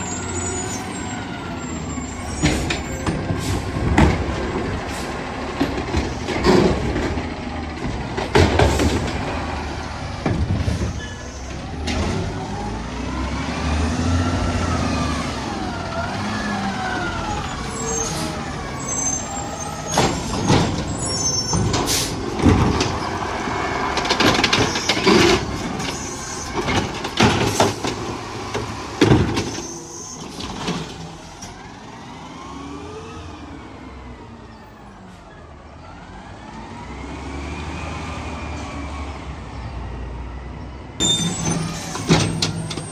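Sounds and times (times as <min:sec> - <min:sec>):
garbage truck hydraulics whining: 0:00.0 - 0:32.2, 0:41.0 - 0:42.9
loud bangs and clanks: 0:02.3 - 0:12.7, 0:19.8 - 0:29.6, 0:41.0 - 0:42.9
air brake hisses: 0:21.9 - 0:22.2.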